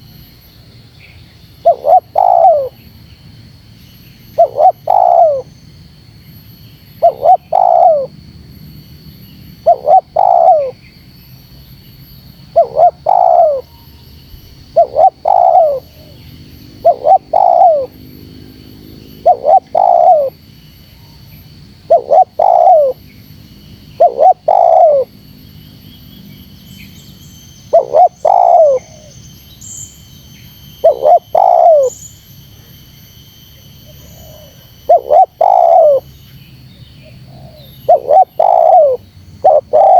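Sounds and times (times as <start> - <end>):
faint high-pitched whine: 0.0 - 39.9
dove cooing: 1.6 - 2.8, 4.4 - 5.5, 7.0 - 8.1, 9.6 - 10.8, 12.5 - 13.7, 14.7 - 18.0, 19.2 - 20.4, 21.9 - 23.0, 24.0 - 25.1, 27.7 - 29.1, 30.8 - 32.0, 34.0 - 36.1, 37.0 - 39.9.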